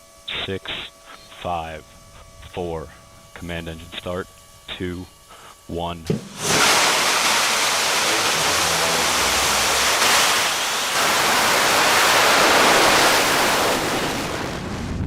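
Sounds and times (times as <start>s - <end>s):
rocket engine roaring: 6.2s - 15.0s.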